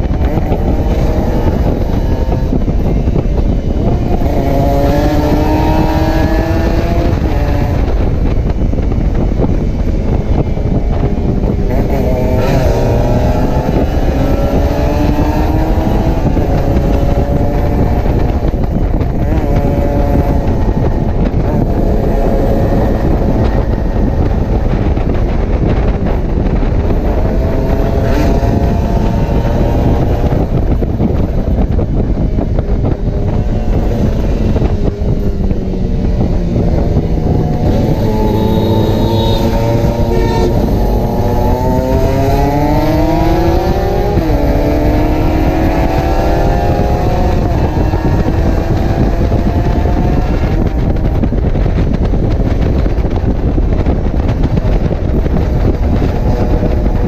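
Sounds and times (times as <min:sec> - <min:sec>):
motorcycle engine revving: 0:00.0 - 0:57.0
wind noise on microphone: 0:00.0 - 0:57.0.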